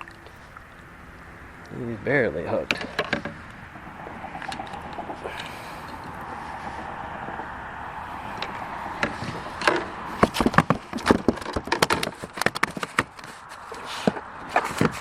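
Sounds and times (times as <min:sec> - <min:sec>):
sharp knocks and taps: 0:09.0 - 0:13.3.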